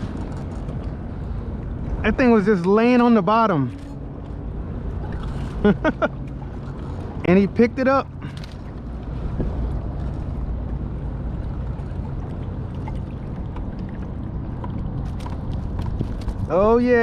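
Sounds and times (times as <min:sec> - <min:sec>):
water around kayak: 0:00.0 - 0:17.0
wind on microphone: 0:08.7 - 0:17.0.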